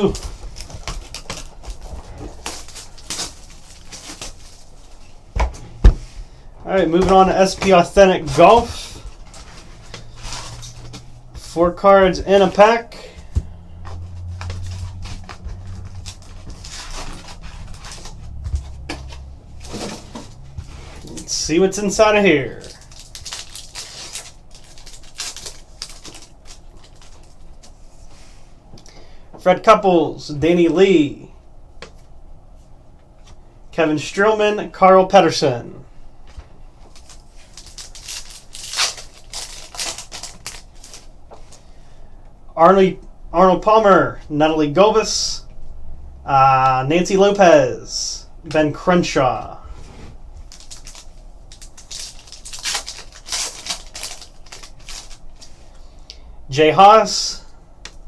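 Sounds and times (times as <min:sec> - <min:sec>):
low hum: 0:00.0 - 0:23.6
cardboard and wrapper rustling: 0:00.0 - 0:28.1, 0:36.8 - 0:41.7, 0:49.7 - 0:56.0.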